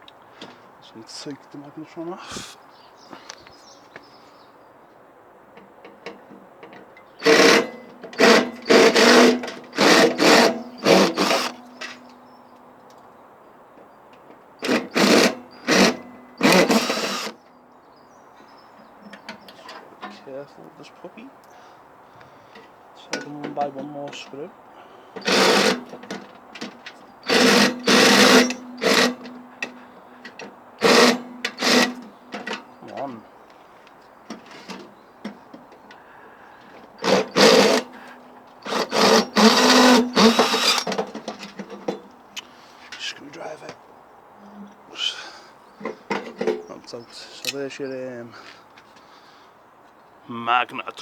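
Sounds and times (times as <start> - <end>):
cordless drill spinning: 7.2 - 11.6, 14.7 - 17.3, 25.2 - 25.8, 27.2 - 29.2, 30.8 - 32.0, 37.0 - 37.9, 38.6 - 41.0.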